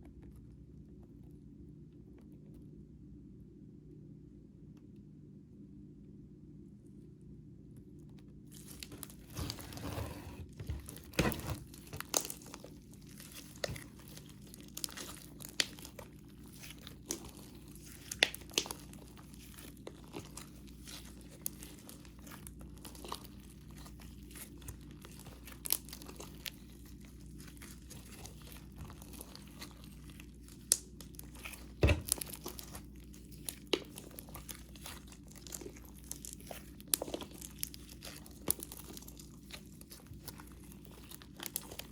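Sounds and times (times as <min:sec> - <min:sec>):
slime kneaded by hand: 0:08.3 - 0:41.9
slime squelches: 0:08.5 - 0:41.9.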